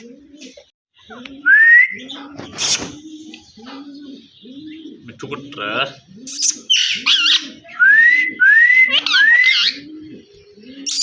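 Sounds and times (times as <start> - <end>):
parrot screeching: 6.3 - 7.6, 8.8 - 9.8
parrot whistling: 6.3 - 9.8
low cooing: 7.0 - 11.0.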